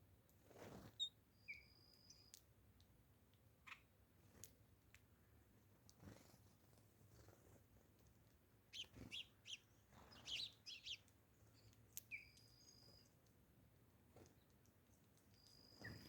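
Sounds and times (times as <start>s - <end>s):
small birds chirping: 0.9s - 2.4s, 3.6s - 3.9s, 8.7s - 13.4s, 14.2s - 16.0s.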